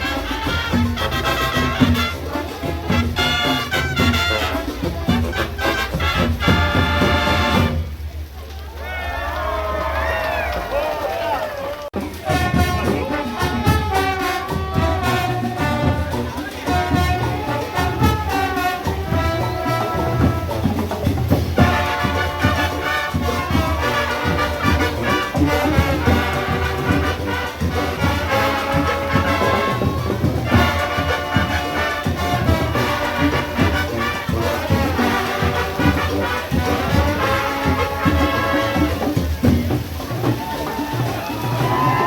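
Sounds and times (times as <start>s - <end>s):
brass horns playing melody: 0.0s - 8.3s, 12.0s - 42.0s
marching drums and percussion: 0.0s - 8.4s, 9.4s - 42.0s.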